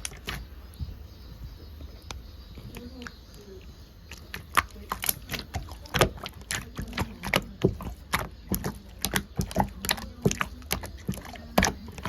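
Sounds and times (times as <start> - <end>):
slime squished by hand: 4.1 - 12.0.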